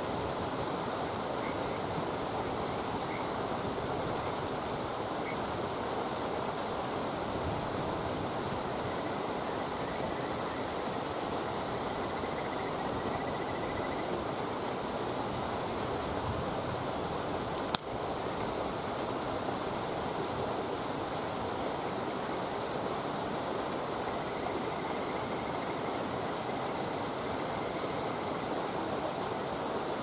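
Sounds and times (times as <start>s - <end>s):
campfire hissing: 0.0s - 30.0s
burning wood popping: 17.2s - 18.0s.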